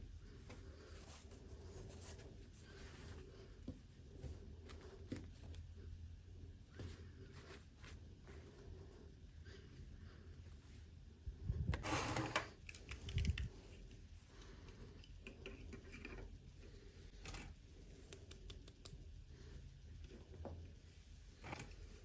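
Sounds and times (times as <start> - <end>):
small clicks: 12.4 - 13.6.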